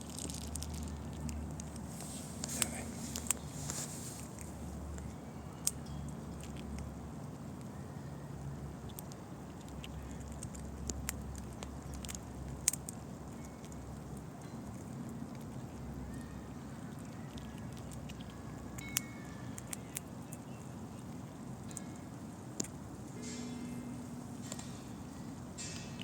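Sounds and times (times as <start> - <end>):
low steady rumble: 0.0 - 18.8, 19.4 - 26.0
squirrel cracking nut shells: 0.0 - 23.4.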